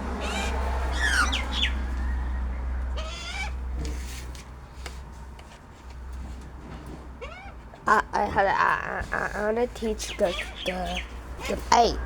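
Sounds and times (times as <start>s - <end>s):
birds calling: 0.0s - 4.0s, 7.1s - 12.0s.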